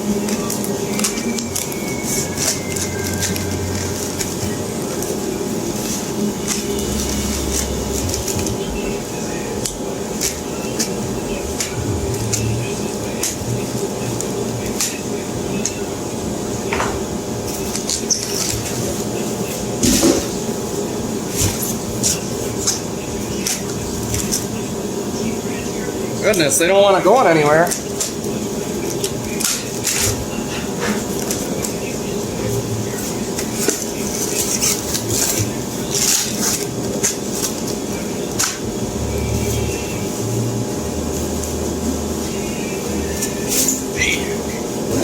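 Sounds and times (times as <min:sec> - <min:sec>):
steady background hum: 0:00.0 - 0:45.0
packaging scraping and rustling: 0:00.3 - 0:09.4.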